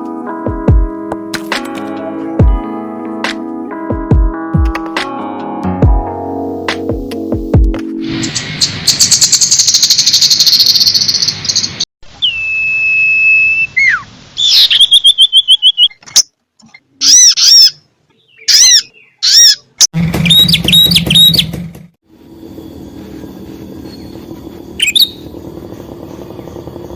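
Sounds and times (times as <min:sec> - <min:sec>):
bird chirps: 0:08.2 - 0:21.6, 0:22.6 - 0:26.9
buzzy bird chatter: 0:08.9 - 0:11.8, 0:16.8 - 0:21.6, 0:23.8 - 0:26.9
bird trill: 0:08.9 - 0:16.3, 0:17.0 - 0:21.5, 0:22.6 - 0:26.9
bird whistle: 0:12.2 - 0:16.0, 0:17.0 - 0:19.6, 0:20.2 - 0:21.5, 0:24.8 - 0:25.3
low hum: 0:22.1 - 0:26.9.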